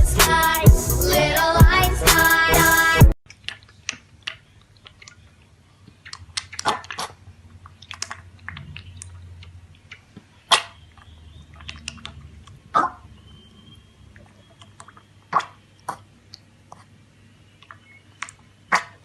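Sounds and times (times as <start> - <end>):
chewing crunches: 3.3 - 13.0.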